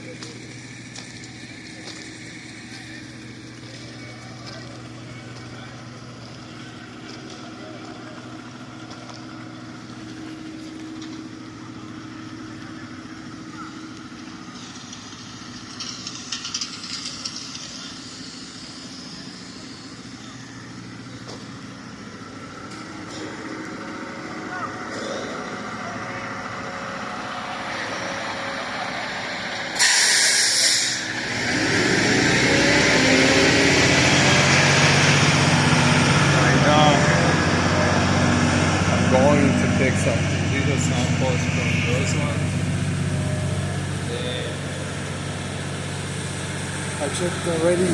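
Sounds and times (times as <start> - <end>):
engine humming: 0.0 - 47.9
air release hiss: 29.7 - 31.1.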